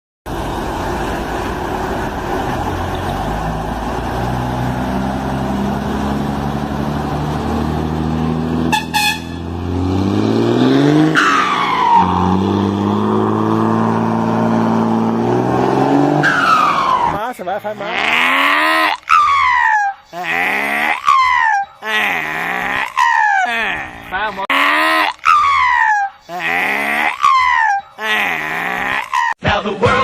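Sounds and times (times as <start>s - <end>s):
truck engine running: 0.3s - 17.2s
truck horn blasts: 8.6s - 9.7s
high tone sliding down: 8.7s - 17.2s.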